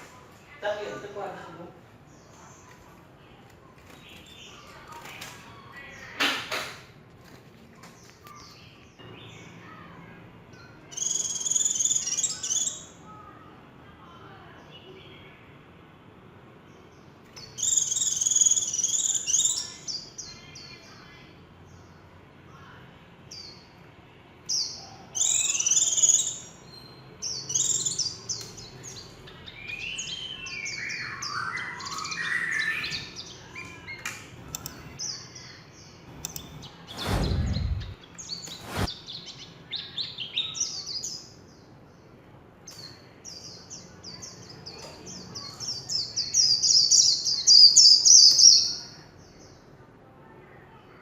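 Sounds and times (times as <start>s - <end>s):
bird twittering song with trills: 7.9s - 13.3s, 24.5s - 41.8s.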